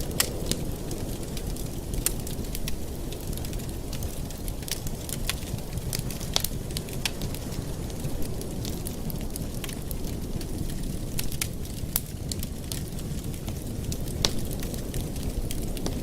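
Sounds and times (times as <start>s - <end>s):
flames rushing: 0.0s - 16.0s
wood fire crackling and popping: 0.0s - 16.0s.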